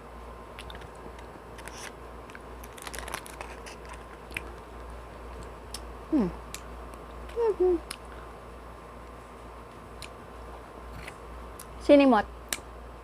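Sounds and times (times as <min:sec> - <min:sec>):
soft chewing: 0:02.6 - 0:05.9.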